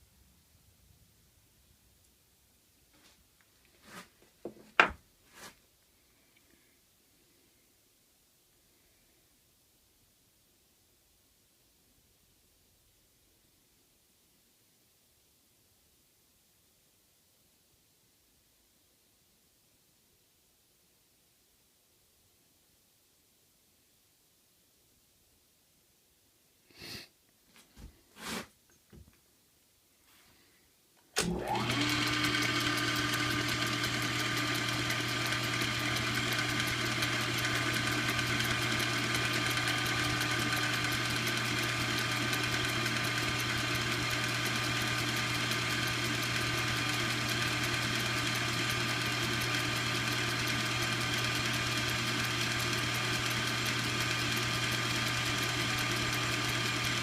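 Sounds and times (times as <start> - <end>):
lathe motor whining: 31.2 - 57.0.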